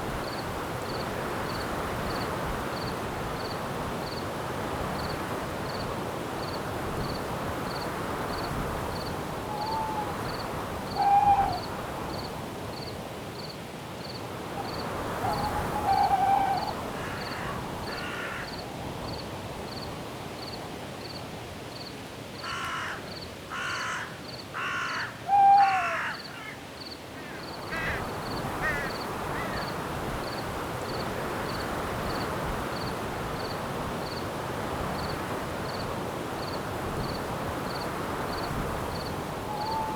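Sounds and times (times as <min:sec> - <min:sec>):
wind through trees: 0:00.0 - 0:39.9
cricket chirping: 0:00.2 - 0:04.3, 0:04.9 - 0:21.2, 0:35.0 - 0:39.9
bird calling: 0:09.4 - 0:11.7, 0:14.6 - 0:18.4, 0:24.6 - 0:26.6, 0:39.4 - 0:39.9
harsh caws: 0:15.2 - 0:18.6, 0:22.4 - 0:26.6, 0:27.2 - 0:29.7.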